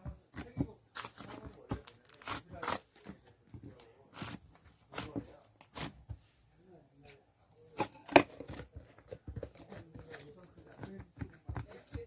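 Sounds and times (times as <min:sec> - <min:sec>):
slime crackling and squishing: 0:00.3 - 0:06.0.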